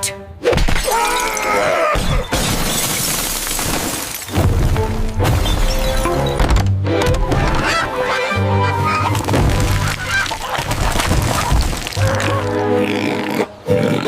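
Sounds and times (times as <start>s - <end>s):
cartoon background music: 4.4s - 10.5s, 12.0s - 14.0s.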